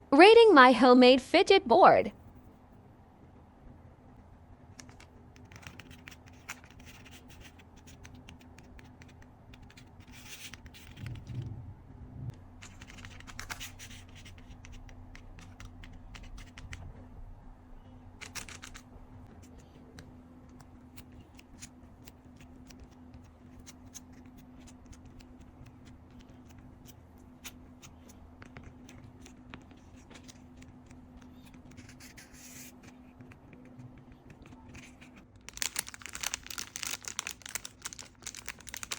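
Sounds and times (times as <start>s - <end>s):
scratching and scraping: 9.0s - 15.6s.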